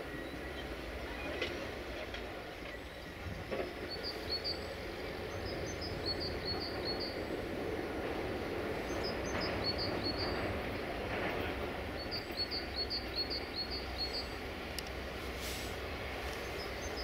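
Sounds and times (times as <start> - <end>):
distant train rumble: 0.0 - 17.0.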